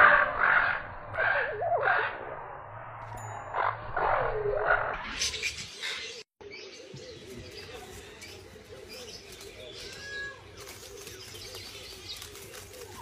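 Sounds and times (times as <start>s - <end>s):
birds calling in chorus: 3.6s - 13.0s
low cooing calls: 8.4s - 13.0s.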